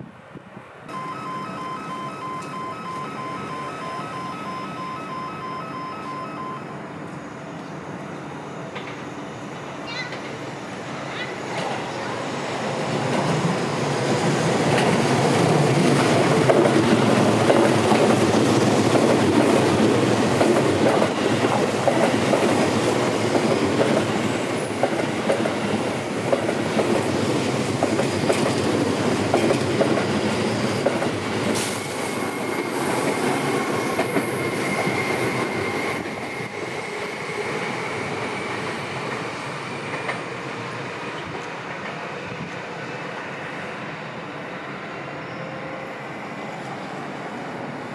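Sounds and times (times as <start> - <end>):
electric train passing: 0.3 - 47.9
faint high whine: 0.9 - 8.7.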